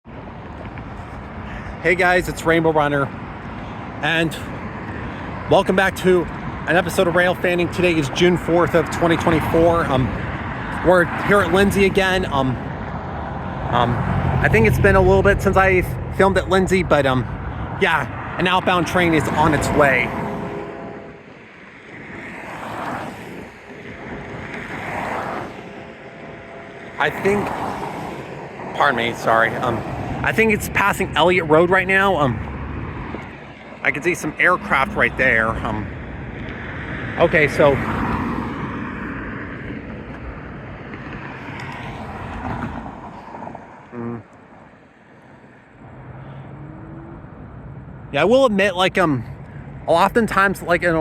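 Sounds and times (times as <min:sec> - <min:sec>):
cars passing with tyre noise: 0:00.0 - 0:51.0.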